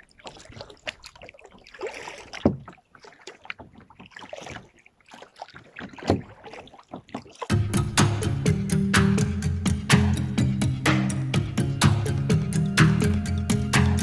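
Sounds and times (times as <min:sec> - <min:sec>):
kayak paddle splashing in water: 0:00.0 - 0:08.2.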